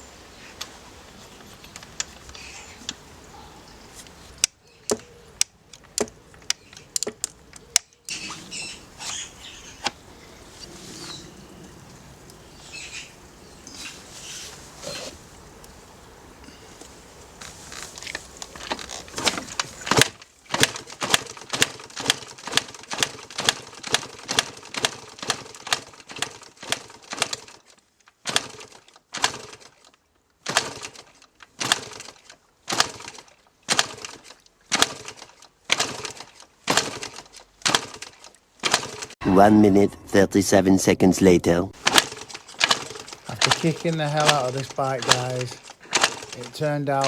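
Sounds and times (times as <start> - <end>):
motorcycle kick-starter clacks: 17.8 - 39.2, 41.8 - 47.0.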